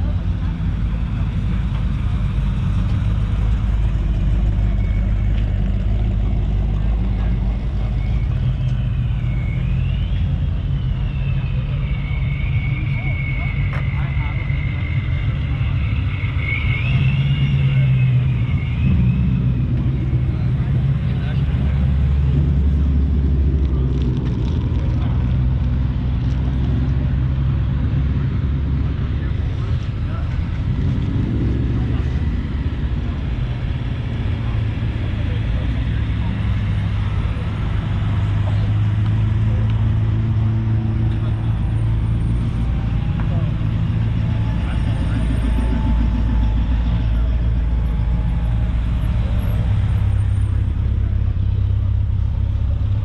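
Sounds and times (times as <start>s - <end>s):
engine rumbling: 0.0s - 53.0s
faint high whine: 0.1s - 23.4s.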